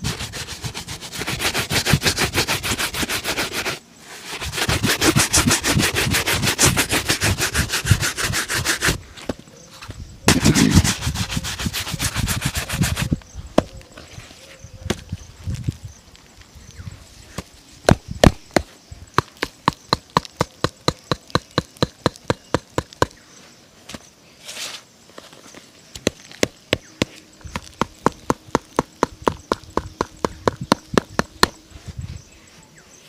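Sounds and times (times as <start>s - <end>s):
shoe brush rubbing leather: 0.0s - 9.0s, 10.3s - 13.2s.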